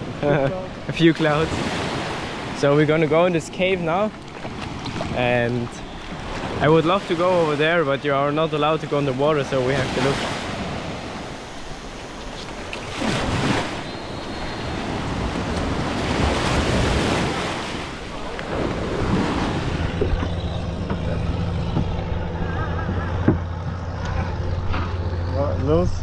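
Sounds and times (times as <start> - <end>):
surf washing onto beach: 0.0 - 20.2
steady low hum: 18.0 - 26.0.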